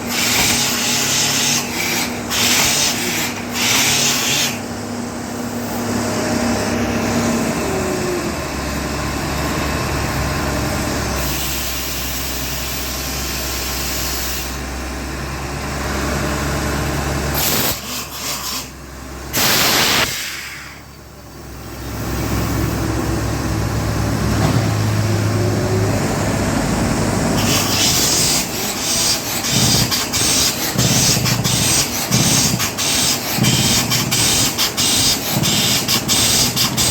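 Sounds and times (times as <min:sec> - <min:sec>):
diesel engine running: 0:04.6 - 0:36.9
short loud burst: 0:19.3 - 0:20.9.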